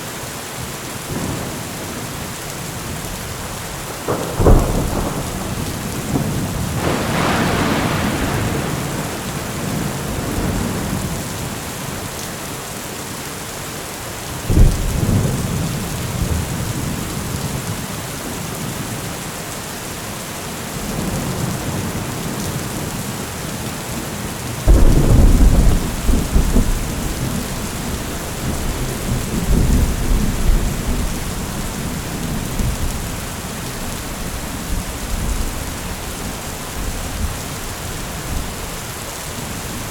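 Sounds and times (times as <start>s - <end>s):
steady rain: 0.0s - 39.9s
thunder rumbling and cracking: 1.1s - 12.1s, 14.5s - 17.9s, 24.6s - 39.9s.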